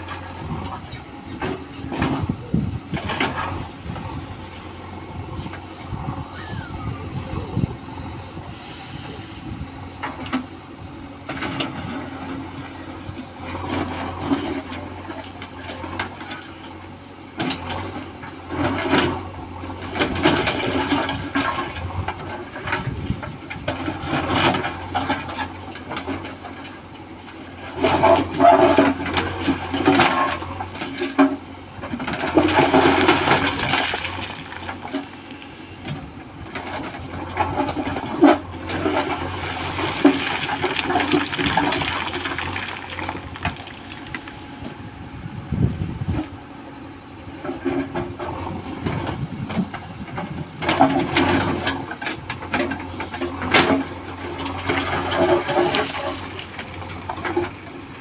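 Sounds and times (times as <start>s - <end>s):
heavy machinery diesel hum: 0.0s - 58.0s
stones clattering and sliding: 32.4s - 35.2s, 39.0s - 44.4s
rushing bursts of rock: 32.8s - 34.9s, 39.3s - 44.3s.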